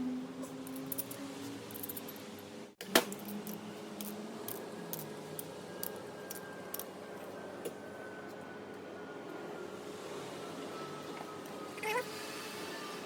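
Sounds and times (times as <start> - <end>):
tools and parts clicking: 0.6 - 2.4, 3.0 - 6.9.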